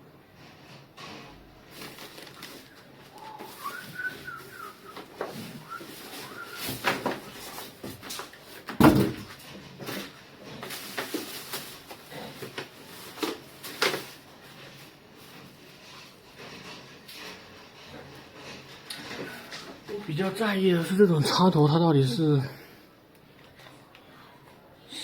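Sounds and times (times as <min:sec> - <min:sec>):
rustling: 0:00.4 - 0:20.4
parts knocking and tapping: 0:06.6 - 0:10.1.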